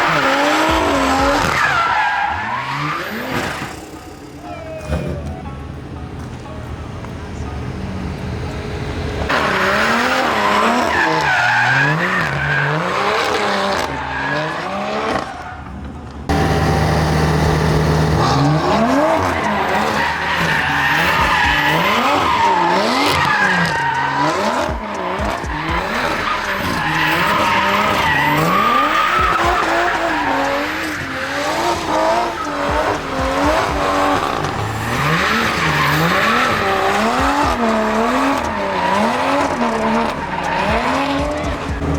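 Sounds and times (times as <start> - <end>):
tires squealing on pavement: 0.0 - 5.4, 7.7 - 41.9
car engine revving: 0.0 - 41.9.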